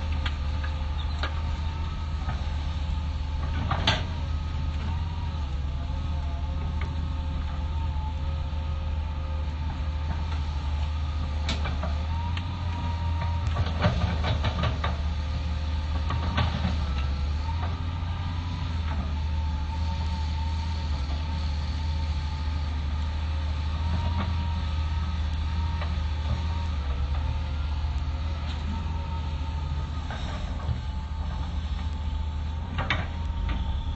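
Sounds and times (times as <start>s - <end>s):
excavator diesel engine running: 0.0s - 33.9s
faint whine: 27.5s - 33.9s.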